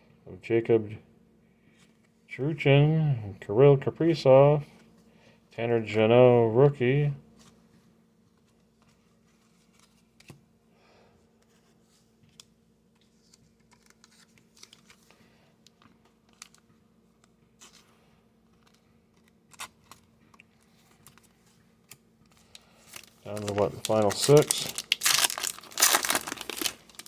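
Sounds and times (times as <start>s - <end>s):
trading cards being handled: 8.3s - 10.4s, 11.4s - 27.0s.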